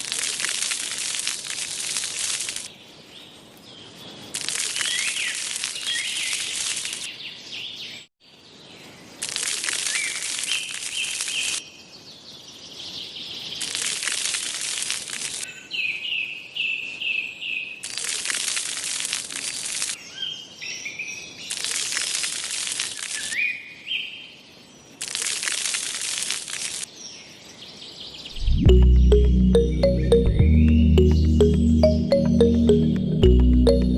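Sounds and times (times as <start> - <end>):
rising bird chirps: 28.3 - 33.9.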